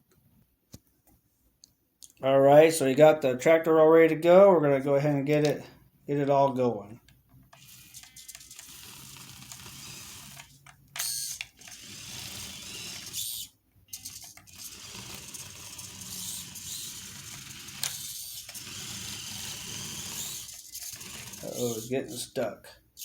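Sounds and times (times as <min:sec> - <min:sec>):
small electric motor gear whir: 0:07.6 - 0:22.2.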